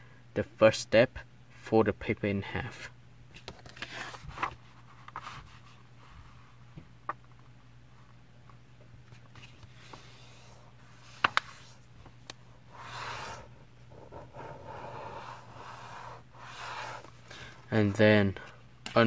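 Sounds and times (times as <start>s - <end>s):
paper rubbing and scraping: 12.7s - 17.2s.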